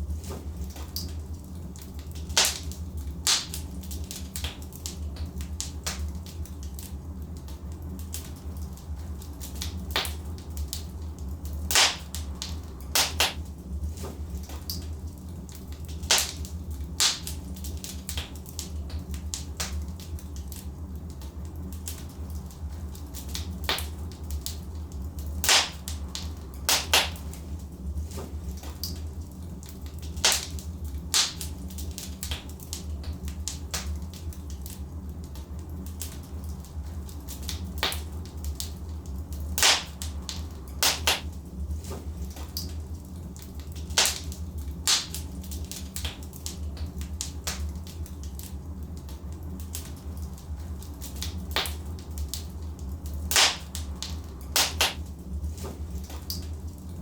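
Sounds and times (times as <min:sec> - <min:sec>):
logs crackling and popping: 0:00.0 - 0:57.0
low rumble of flames: 0:00.0 - 0:57.0.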